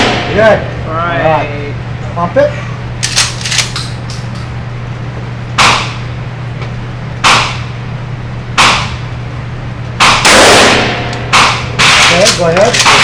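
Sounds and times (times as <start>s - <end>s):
gunshots with echo: 10.0s - 13.0s.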